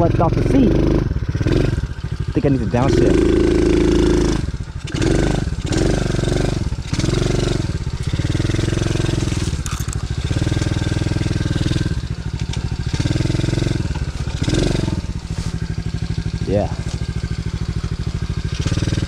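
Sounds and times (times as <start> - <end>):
pit bike engine revving: 0.0 - 19.0.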